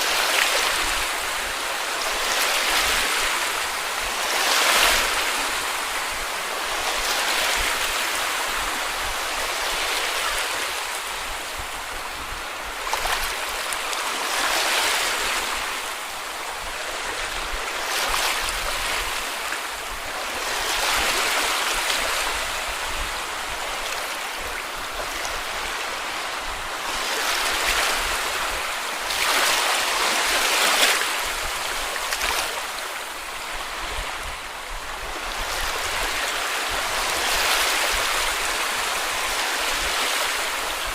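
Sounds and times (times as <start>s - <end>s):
small waves washing on beach: 0.0s - 40.9s.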